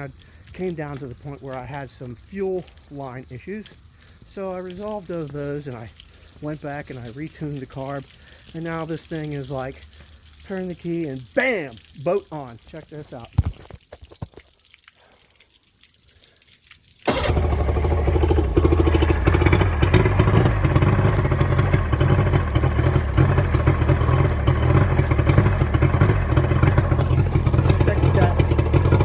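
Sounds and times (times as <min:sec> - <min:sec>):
boat engine starting and running: 0:17.0 - 0:29.0.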